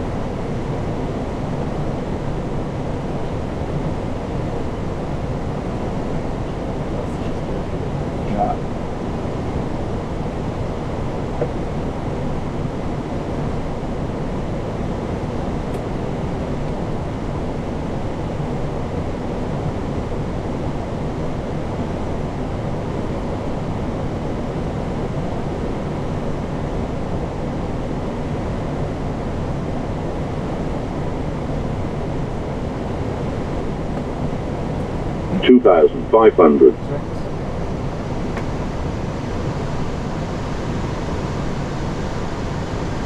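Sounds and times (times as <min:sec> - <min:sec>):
cockpit airflow rush: 0:35.3 - 0:36.7.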